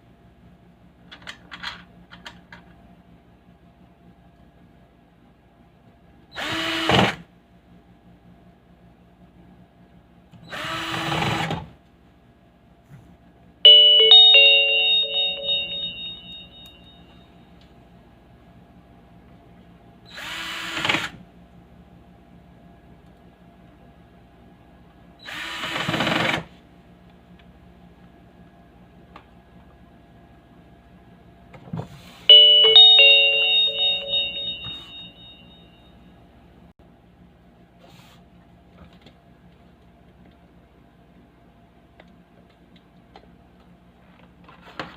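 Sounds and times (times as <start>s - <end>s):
faint steady hum: 11.9s - 20.0s, 32.3s - 37.7s
bell-like electronic chime: 13.7s - 17.3s, 32.3s - 36.1s.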